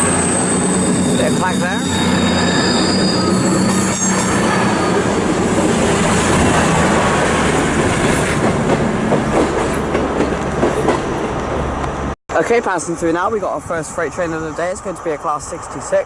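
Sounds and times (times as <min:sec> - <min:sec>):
wheel squeal: 0:00.0 - 0:05.4
train engines rumbling: 0:00.0 - 0:16.0.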